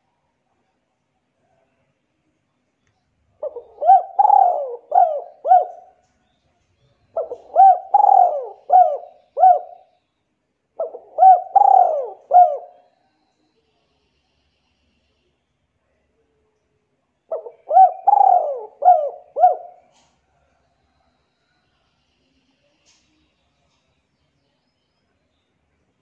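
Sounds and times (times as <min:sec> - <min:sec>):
bird calling: 0:03.4 - 0:06.0, 0:07.2 - 0:09.9, 0:10.8 - 0:12.8, 0:17.3 - 0:20.1.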